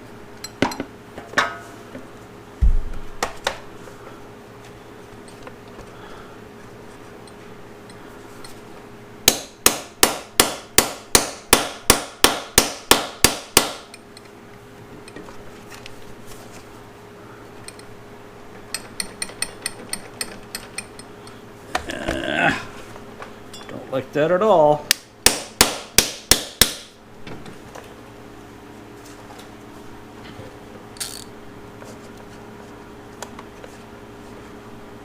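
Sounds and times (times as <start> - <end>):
hammer striking metal: 9.3 - 13.9, 24.9 - 26.9.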